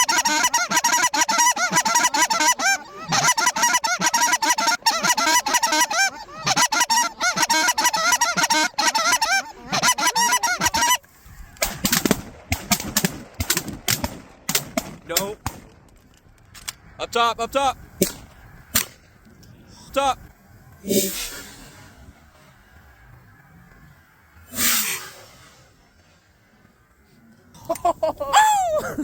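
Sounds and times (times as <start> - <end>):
geese honking: 0.0 - 11.9.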